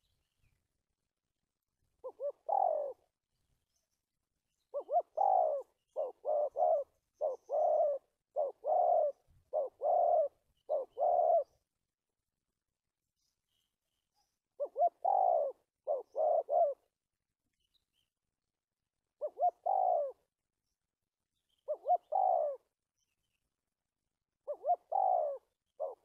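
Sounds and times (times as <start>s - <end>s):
dove cooing: 2.0s - 3.1s, 4.7s - 11.6s, 14.6s - 17.0s, 19.2s - 20.3s, 21.6s - 22.7s, 24.4s - 26.0s.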